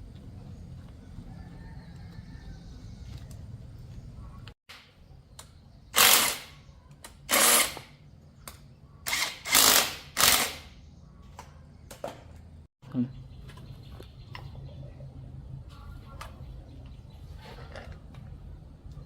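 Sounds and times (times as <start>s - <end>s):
power tool bursts: 6.0s - 6.6s, 7.3s - 7.9s, 9.1s - 10.7s.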